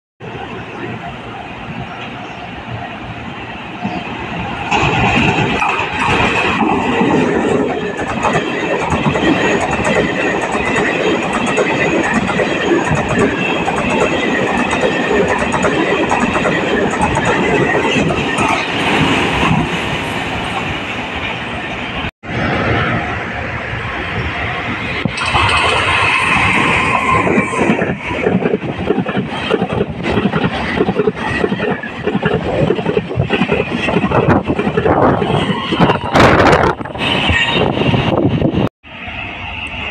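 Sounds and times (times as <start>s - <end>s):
wind buffeting microphone: 0.2s - 38.7s
train wheels rushing on rails: 0.2s - 39.9s
rapid clicks of rails: 4.4s - 20.7s, 24.9s - 38.7s.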